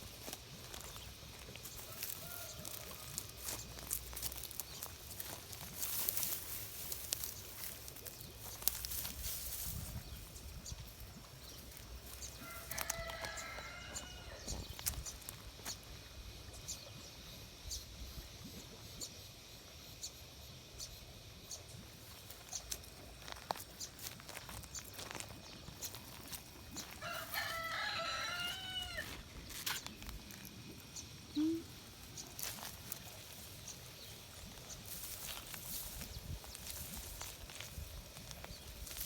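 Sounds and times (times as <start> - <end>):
rooster crowing: 1.9 - 3.4, 12.4 - 14.6, 26.8 - 29.3.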